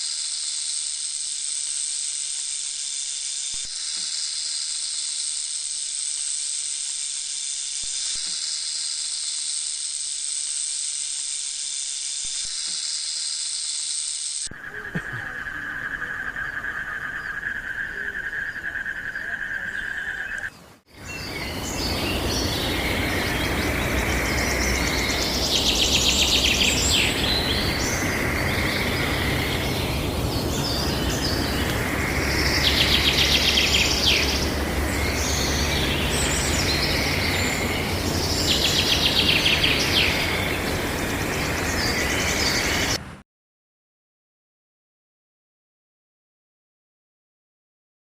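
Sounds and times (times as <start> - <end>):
birds chirping: 14.4 - 43.0
chattering bird trill: 14.5 - 20.5
outdoor background rumble: 21.0 - 43.2.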